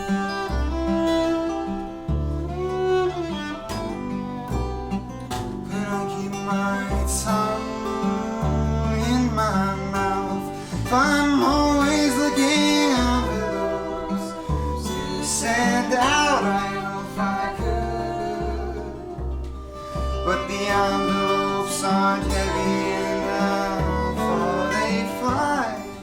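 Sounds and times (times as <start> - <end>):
low bass notes: 0.0 - 26.0
plucked guitar: 0.0 - 26.0
viola: 0.0 - 26.0.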